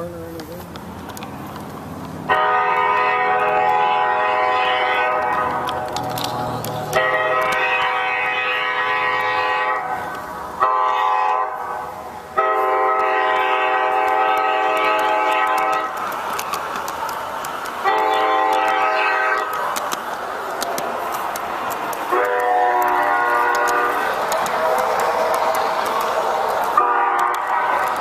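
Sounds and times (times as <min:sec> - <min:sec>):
model train horn blasts: 0:02.3 - 0:06.3, 0:06.9 - 0:16.0, 0:17.8 - 0:19.6, 0:22.0 - 0:25.4, 0:26.7 - 0:28.0
faint clicking: 0:13.0 - 0:28.0.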